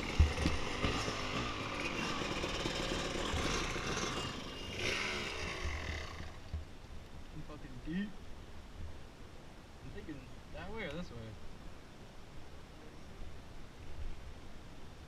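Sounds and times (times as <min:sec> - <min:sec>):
dirt bike engine running: 0:00.0 - 0:06.7.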